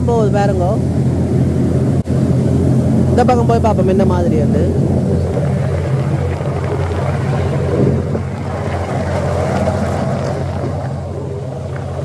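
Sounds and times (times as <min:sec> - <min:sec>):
rushing air: 0:00.0 - 0:12.0
ship engines rumbling: 0:00.0 - 0:12.0.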